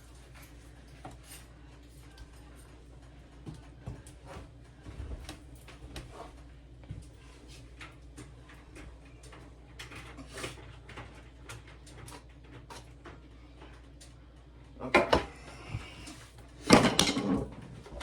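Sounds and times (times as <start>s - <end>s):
kitchen utensils clicking: 16.6s - 18.0s.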